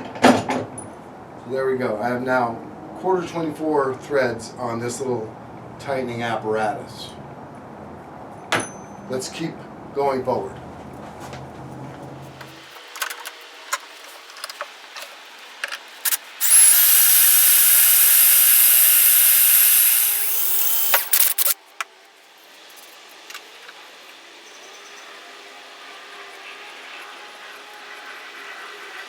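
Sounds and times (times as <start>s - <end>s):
electric drill whining: 16.1s - 21.6s.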